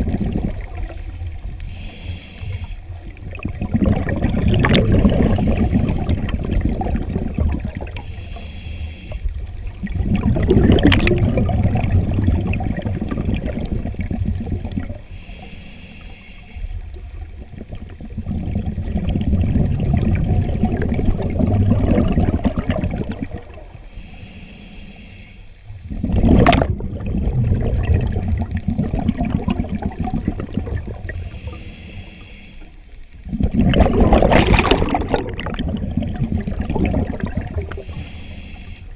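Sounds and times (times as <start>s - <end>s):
bubbles from diver exhaling: 0.0s - 1.0s, 3.2s - 8.0s, 9.8s - 15.0s, 17.4s - 23.6s, 25.9s - 31.2s, 33.3s - 37.8s
regulator hiss on inhale: 1.0s - 3.2s, 5.2s - 6.4s, 7.7s - 9.8s, 14.8s - 17.4s, 23.5s - 25.9s, 30.9s - 33.3s, 37.5s - 38.9s.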